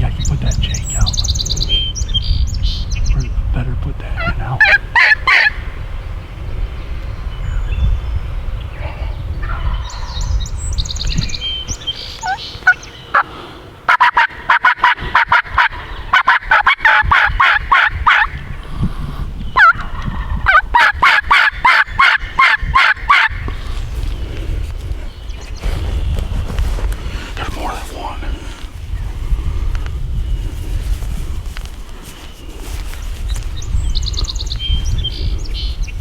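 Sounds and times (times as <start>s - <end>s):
high bird twittering: 0.0s - 3.4s, 7.1s - 13.3s
turkey yelping: 4.2s - 5.7s, 12.1s - 13.2s, 13.9s - 18.4s, 19.6s - 23.5s.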